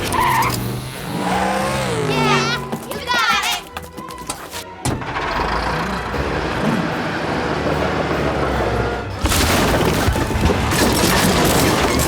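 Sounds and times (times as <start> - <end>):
music: 0.0 - 12.0.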